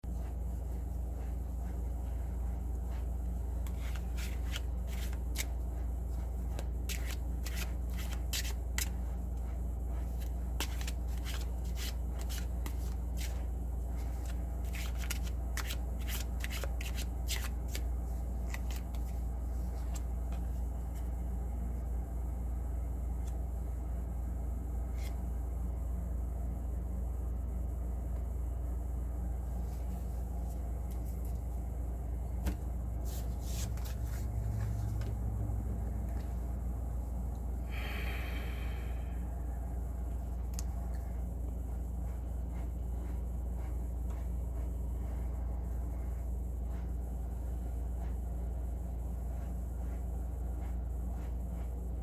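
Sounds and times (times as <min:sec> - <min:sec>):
low hum: 0:00.0 - 0:52.0
cards being shuffled: 0:02.8 - 0:21.1, 0:24.9 - 0:25.2, 0:32.4 - 0:35.3.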